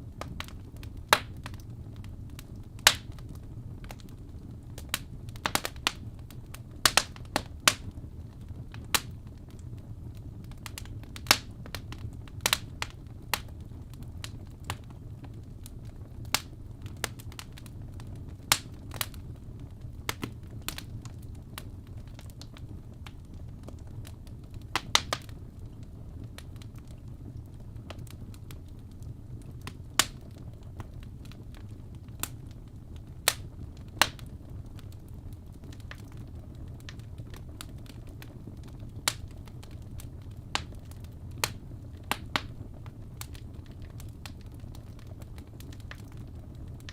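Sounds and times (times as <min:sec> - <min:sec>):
fire rumbling: 0:00.0 - 0:46.9
logs crackling and popping: 0:00.0 - 0:46.9.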